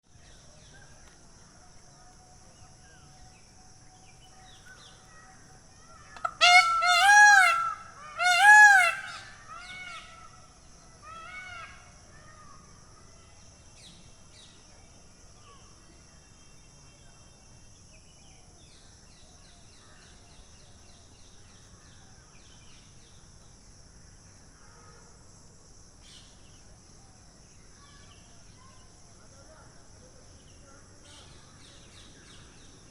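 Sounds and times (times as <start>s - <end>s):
peacock calling: 4.1s - 11.9s.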